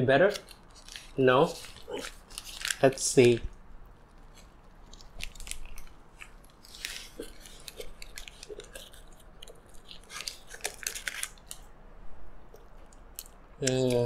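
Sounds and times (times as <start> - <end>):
person chewing food: 0.5 - 2.8, 3.6 - 11.7.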